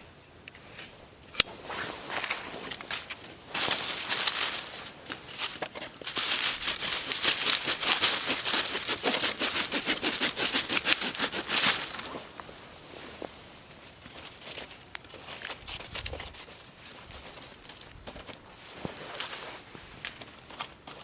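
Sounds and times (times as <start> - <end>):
aluminium foil crumpling: 2.0 - 12.2, 13.6 - 18.4.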